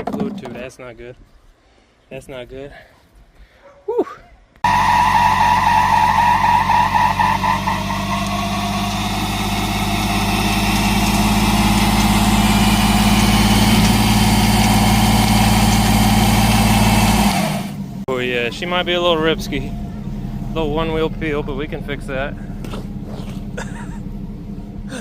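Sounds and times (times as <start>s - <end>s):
engine at high revs: 4.6s - 18.0s
tire squealing: 4.6s - 25.0s.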